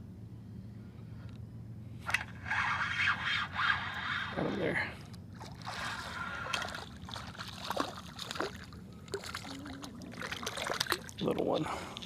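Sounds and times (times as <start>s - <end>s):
water splashing and trickling: 5.3s - 12.0s.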